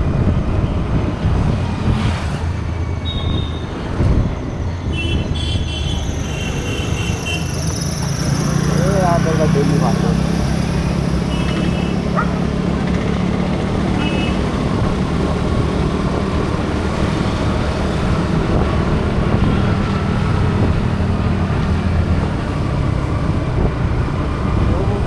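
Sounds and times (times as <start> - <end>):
road noise: 0.0 - 25.0
vehicle engine running: 7.7 - 25.0.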